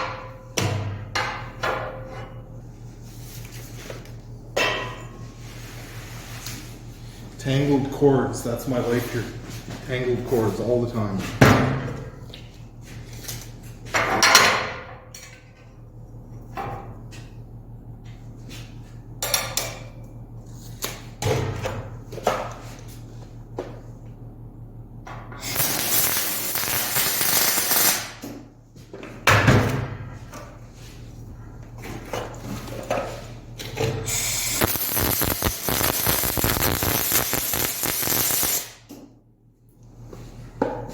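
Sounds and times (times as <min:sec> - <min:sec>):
loud steady hiss: 0:25.4 - 0:28.2, 0:34.2 - 0:38.8.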